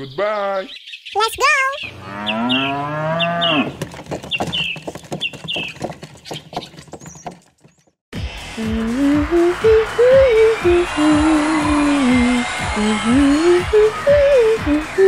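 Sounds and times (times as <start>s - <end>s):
cow mooing: 1.9s - 3.8s
clicking hoofbeats: 3.6s - 8.0s.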